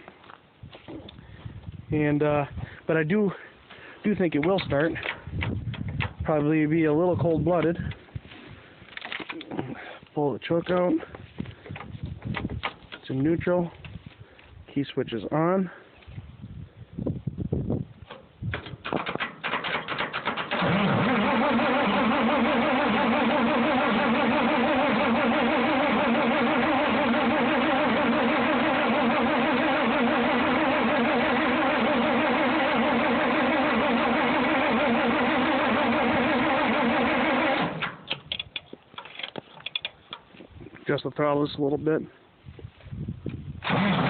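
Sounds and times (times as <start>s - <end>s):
tractor engine cranking: 4.1s - 6.5s, 18.0s - 40.3s, 43.6s - 44.0s
starter clicks: 18.1s - 20.9s, 37.4s - 40.3s.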